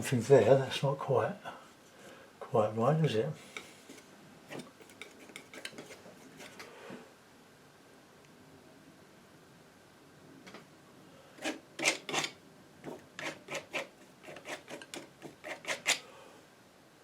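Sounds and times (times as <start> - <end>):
painting knife scraping paint: 3.6 - 6.7, 11.4 - 16.0.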